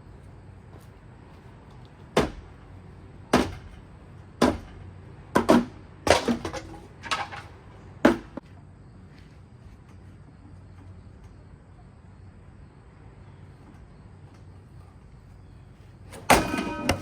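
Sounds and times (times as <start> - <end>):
objects striking ceiling fan: 16.1 - 17.0.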